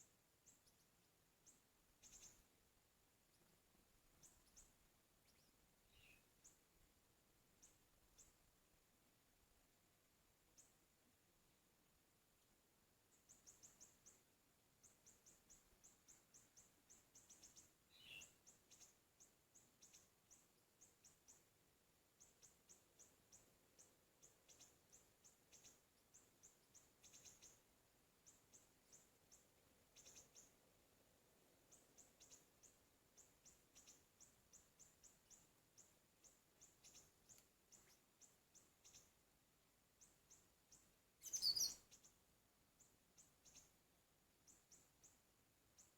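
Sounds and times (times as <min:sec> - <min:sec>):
high-pitched bird chirps: 0:41.2 - 0:41.9
lower bird call: 0:41.2 - 0:42.0.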